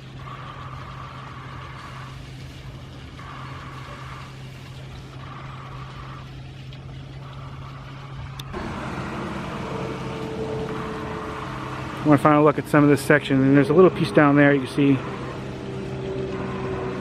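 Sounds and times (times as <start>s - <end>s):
engine running: 0.0s - 17.0s
motor hum: 0.0s - 17.0s.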